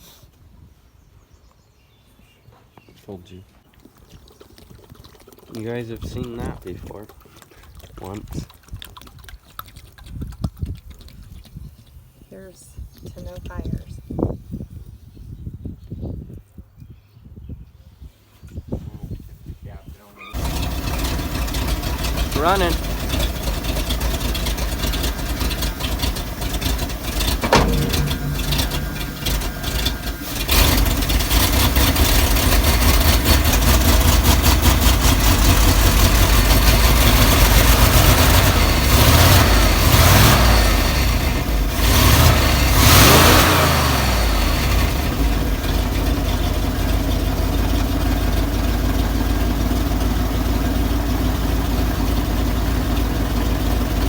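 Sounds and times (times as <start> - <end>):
truck engine revving and idling: 20.4 - 54.0.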